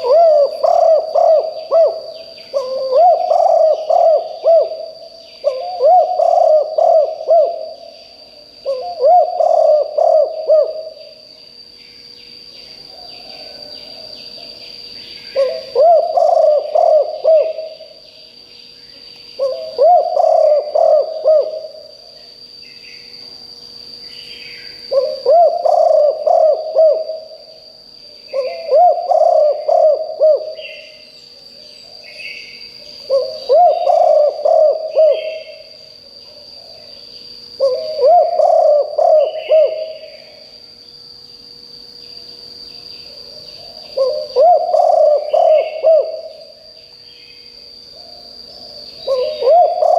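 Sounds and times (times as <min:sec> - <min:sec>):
dove cooing: 0:00.0 - 0:11.2, 0:12.8 - 0:14.6, 0:15.2 - 0:18.0, 0:19.4 - 0:22.2, 0:24.7 - 0:27.6, 0:28.2 - 0:31.1, 0:33.0 - 0:36.9, 0:37.6 - 0:40.4, 0:43.1 - 0:46.6, 0:48.0 - 0:49.9
steady high whine: 0:00.0 - 0:49.9.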